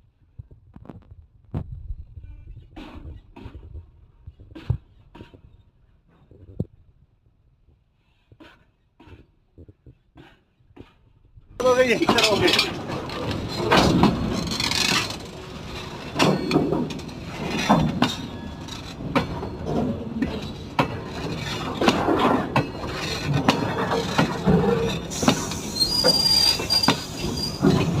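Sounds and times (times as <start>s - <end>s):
high wheel squeal: 11.6s - 20.6s, 22.5s - 28.0s
train wheels clattering over joints: 11.6s - 28.0s.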